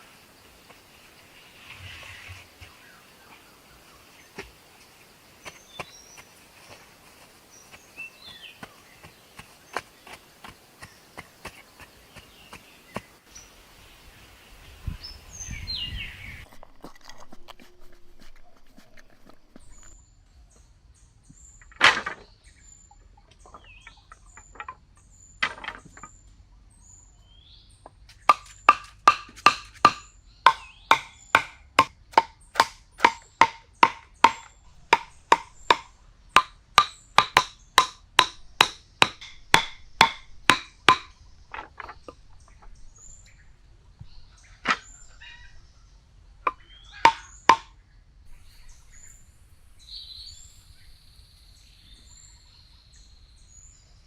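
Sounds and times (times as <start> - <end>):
sharp knocks: 28.3 - 42.2, 46.5 - 47.7.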